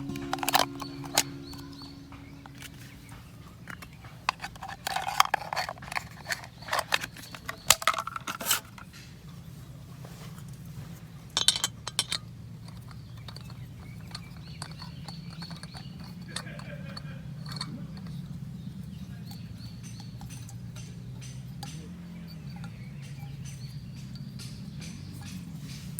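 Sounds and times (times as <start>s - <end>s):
steady low hum: 0.0s - 4.0s
small hard objects clinking: 11.3s - 21.8s.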